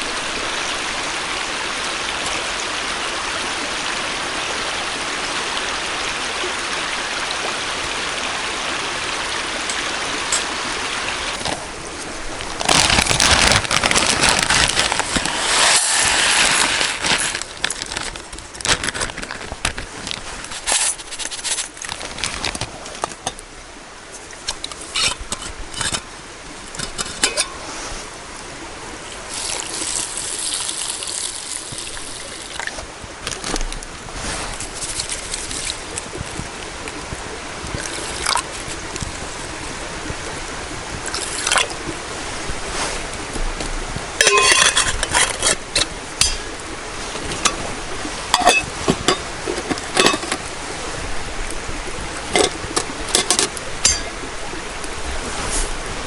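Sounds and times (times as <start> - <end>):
water pouring and trickling: 0.0 - 56.0
steady hiss: 14.2 - 18.5
metal pots and utensils clinking: 26.8 - 27.6, 44.2 - 46.5, 48.3 - 50.4, 52.3 - 54.1.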